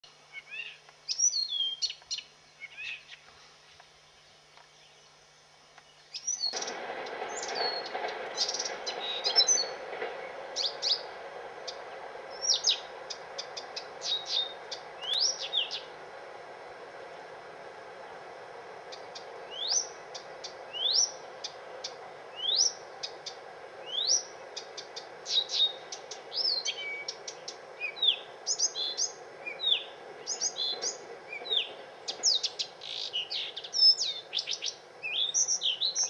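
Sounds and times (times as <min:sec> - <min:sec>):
bird chirping and whistling: 0:06.1 - 0:06.6, 0:12.4 - 0:12.9, 0:13.5 - 0:15.8, 0:19.5 - 0:19.9, 0:20.7 - 0:21.2, 0:22.4 - 0:22.8, 0:23.9 - 0:24.3, 0:25.3 - 0:27.2, 0:27.8 - 0:36.0
steady rushing noise: 0:06.5 - 0:32.8.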